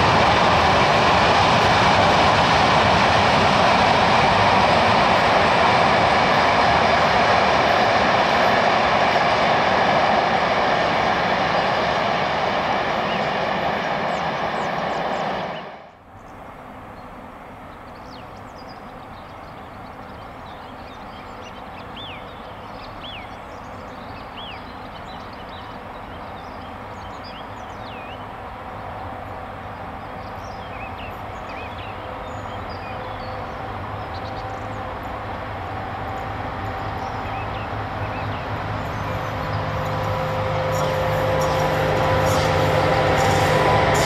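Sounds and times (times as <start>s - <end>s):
train passing with whine: 0.0s - 44.0s
small birds chirping: 17.0s - 28.4s, 29.8s - 34.9s.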